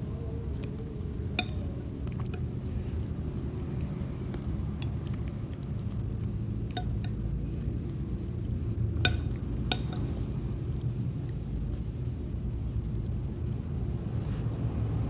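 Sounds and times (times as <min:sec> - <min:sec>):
steady low rumble: 0:00.0 - 0:15.0
utensil clinking on tableware: 0:01.4 - 0:01.6, 0:09.1 - 0:10.1.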